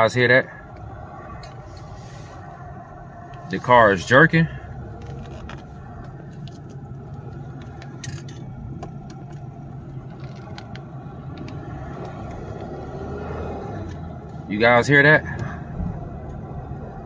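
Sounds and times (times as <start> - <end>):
car engine hum from inside cabin: 0.0 - 17.0.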